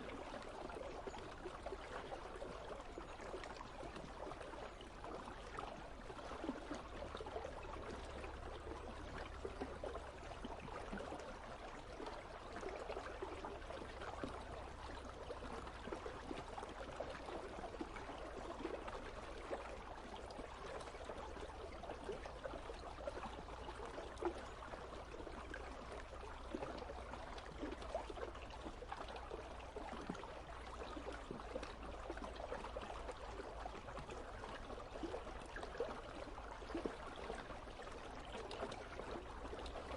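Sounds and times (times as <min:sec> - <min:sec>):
river water rushing and trickling: 0:00.0 - 0:39.9.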